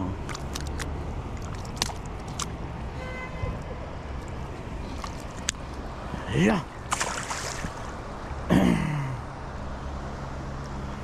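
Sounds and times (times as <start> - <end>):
river water rushing: 0.0 - 8.5.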